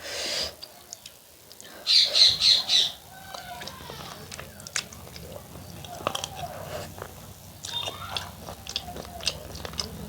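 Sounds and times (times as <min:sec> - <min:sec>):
biting and chewing food: 0:03.1 - 0:10.0.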